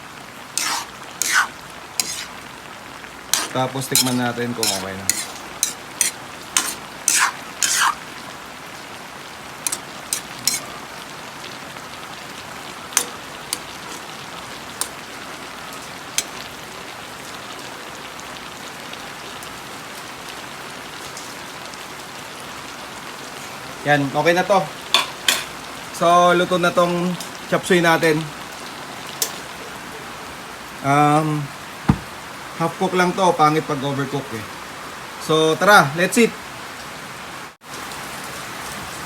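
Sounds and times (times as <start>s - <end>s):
vegetables sizzling in a frying pan: 0.0s - 29.8s
utensil clinking against pan: 3.4s - 7.9s, 9.7s - 10.6s, 13.0s - 14.0s.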